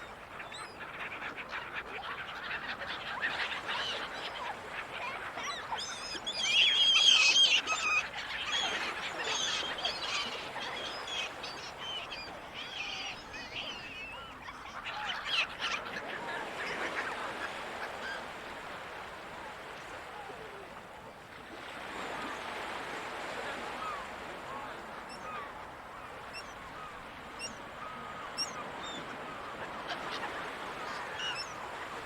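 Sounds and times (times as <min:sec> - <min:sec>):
gulls squawking: 0:01.3 - 0:18.7, 0:23.7 - 0:32.0.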